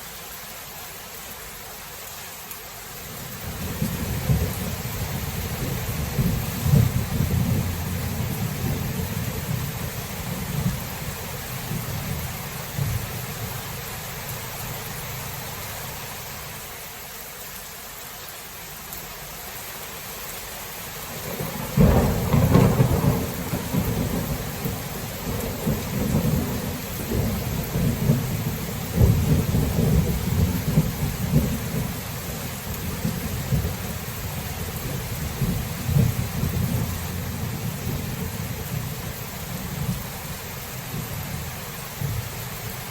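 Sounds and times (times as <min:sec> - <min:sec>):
steady rain: 0:00.0 - 0:42.9
thunder rumbling: 0:03.4 - 0:14.3, 0:21.2 - 0:42.9
loud thunderclap: 0:03.6 - 0:09.7, 0:21.2 - 0:31.9, 0:35.3 - 0:38.4.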